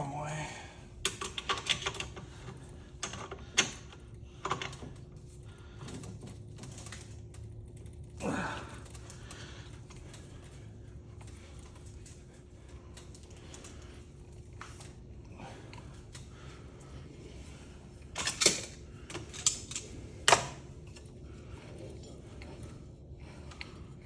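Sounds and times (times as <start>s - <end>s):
metal parts clicking and knocking: 1.0s - 5.0s, 18.1s - 21.1s.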